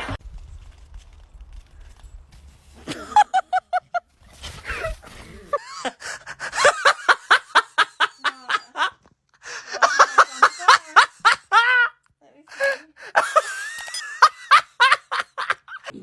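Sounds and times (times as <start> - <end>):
person laughing: 2.8 - 4.0, 4.6 - 16.0.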